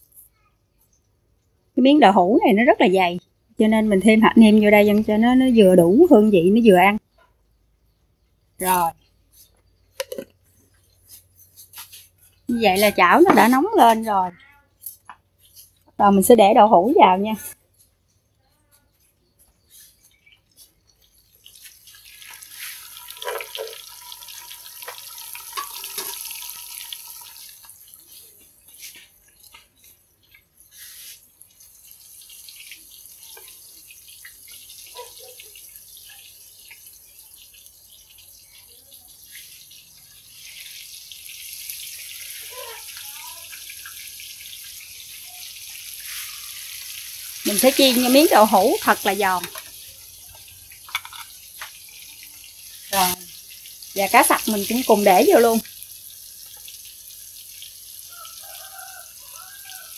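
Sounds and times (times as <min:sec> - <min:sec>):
tofu sizzling in hot oil: 0:20.9 - 0:59.9
metal spatula scraping pan: 0:24.8 - 0:26.4.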